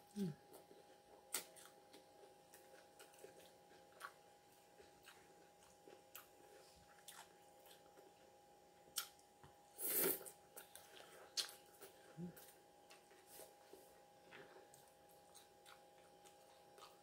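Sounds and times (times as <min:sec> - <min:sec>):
chewing: 0:01.3 - 0:08.2, 0:14.2 - 0:17.0.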